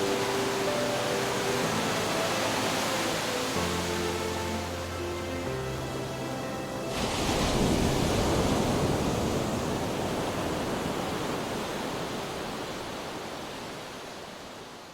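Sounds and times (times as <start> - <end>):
music: 0.0 - 8.7
ocean waves breaking: 0.0 - 14.3.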